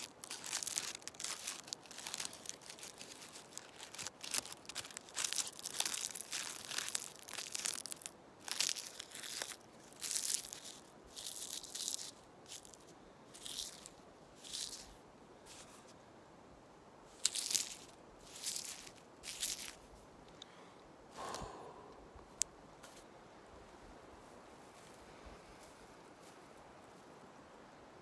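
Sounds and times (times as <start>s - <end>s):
dry leaves crackling: 0.0s - 15.8s, 17.1s - 20.0s.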